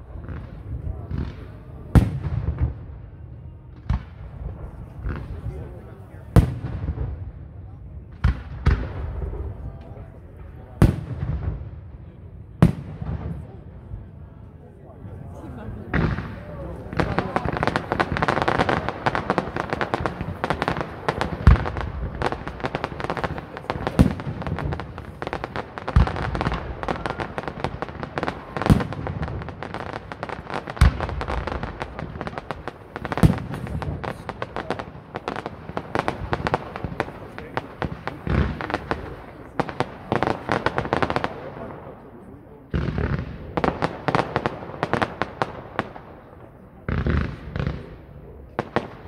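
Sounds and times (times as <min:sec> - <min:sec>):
fireworks crackling and popping: 0:00.0 - 0:07.3, 0:15.4 - 0:49.0.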